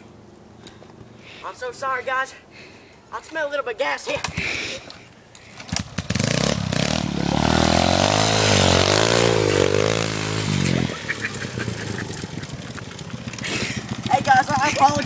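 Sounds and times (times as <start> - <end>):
pit bike engine revving: 5.5 - 15.0.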